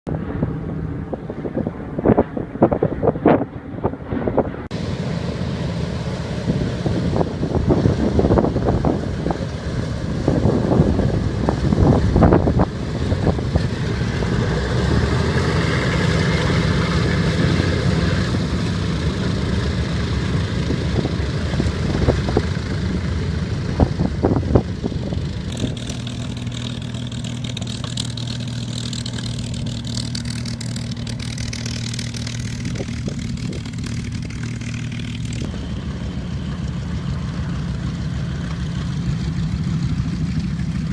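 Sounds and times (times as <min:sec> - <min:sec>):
wind buffeting microphone: 0:00.1 - 0:04.7, 0:06.3 - 0:16.3, 0:20.1 - 0:27.4, 0:29.4 - 0:35.5
piston aircraft engines droning: 0:00.1 - 0:40.9.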